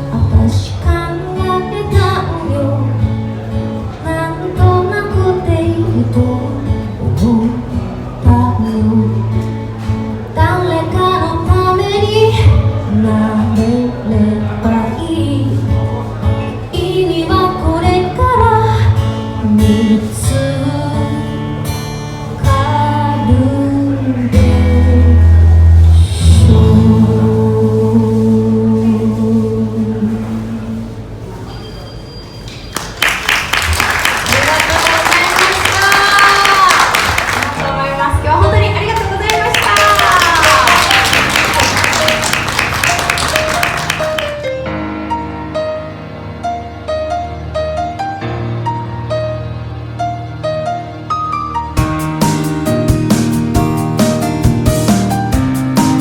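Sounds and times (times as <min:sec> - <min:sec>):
woman singing a ballad: 0:00.0 - 0:03.0, 0:04.0 - 0:09.2, 0:10.4 - 0:15.8, 0:16.8 - 0:21.5, 0:22.4 - 0:30.8
acoustic guitar: 0:00.0 - 0:56.0.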